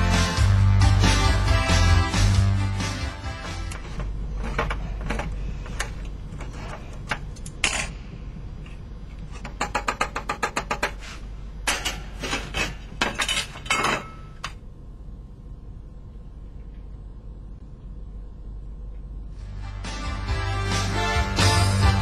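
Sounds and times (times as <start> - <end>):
low steady hum: 0.0 - 22.0
dishes and cutlery clattering: 11.7 - 14.4.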